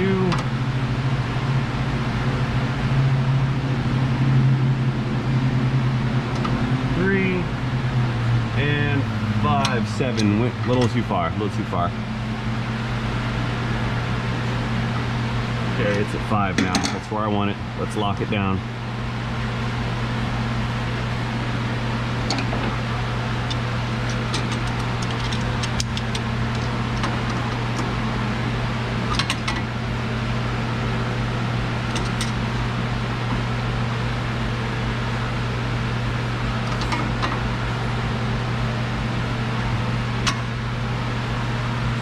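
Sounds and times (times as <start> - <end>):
low machine hum: 0.0 - 42.0
hand tools clinking on metal: 16.6 - 17.1.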